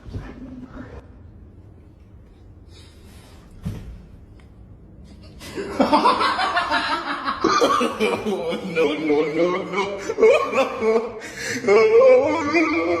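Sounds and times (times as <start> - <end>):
loud laughter: 5.4 - 13.0.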